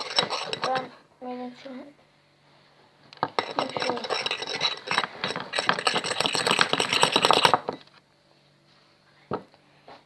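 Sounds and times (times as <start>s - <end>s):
spoon scraping in a bowl: 0.0s - 1.0s, 3.2s - 7.8s.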